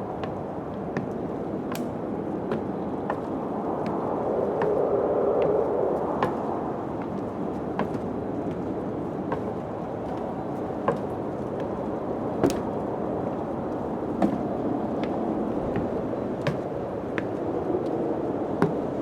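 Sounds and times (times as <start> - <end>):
wind blowing: 0.0 - 19.0
sharp ticks and knocks: 0.2 - 4.0.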